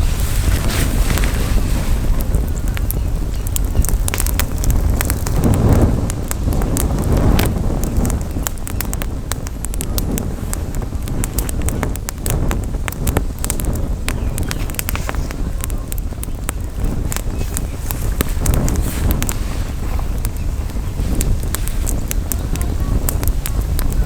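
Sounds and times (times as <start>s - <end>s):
campfire crackling and popping: 0.0s - 24.0s
wind rumble on microphone: 0.0s - 24.0s.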